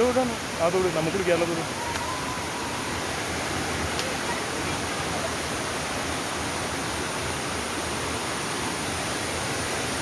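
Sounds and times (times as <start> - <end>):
stream water rushing: 0.0 - 10.0.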